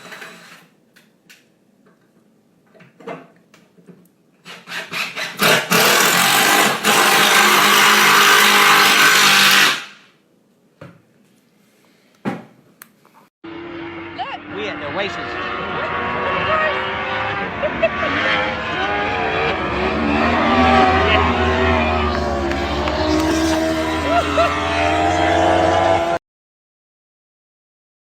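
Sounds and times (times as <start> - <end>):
loud machine-like noise: 4.7 - 10.0, 13.5 - 26.2.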